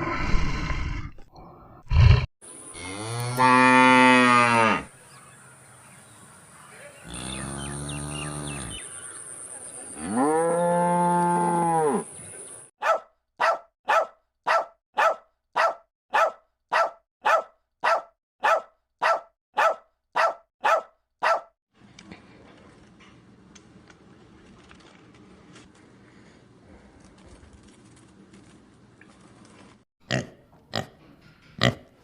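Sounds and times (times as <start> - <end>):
cow mooing: 2.7 - 4.9, 7.0 - 8.8, 10.0 - 12.1.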